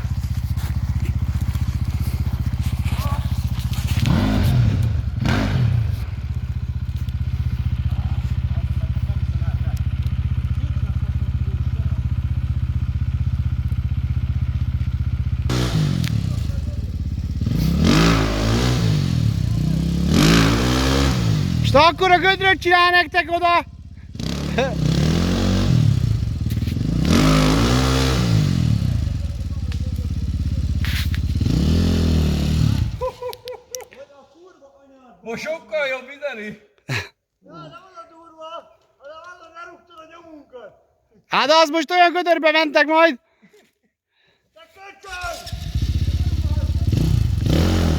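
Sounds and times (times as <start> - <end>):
motorcycle engine idling: 0.0 - 20.4, 21.3 - 33.2, 45.2 - 47.9.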